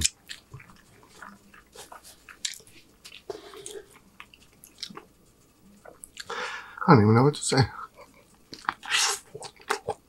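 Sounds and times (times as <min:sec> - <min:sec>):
chewing with wet smacks: 0:00.0 - 0:05.1, 0:05.8 - 0:06.3, 0:08.1 - 0:10.0.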